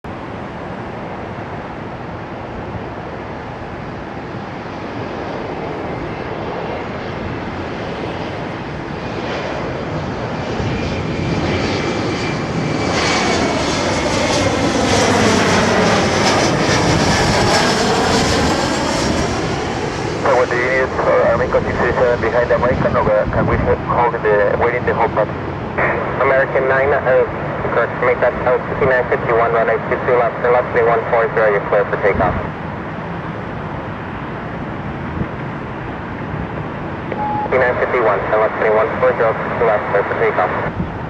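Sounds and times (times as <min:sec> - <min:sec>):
jet engines on approach: 0:00.0 - 0:41.0
thin steady whine: 0:37.1 - 0:40.7.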